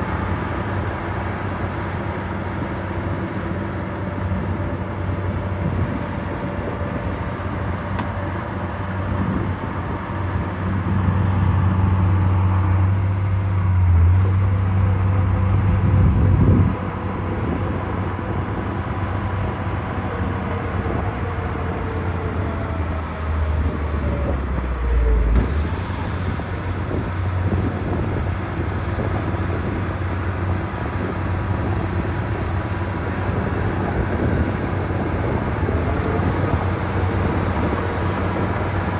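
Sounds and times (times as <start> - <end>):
heavy diesel engines under load: 0.0 - 38.9.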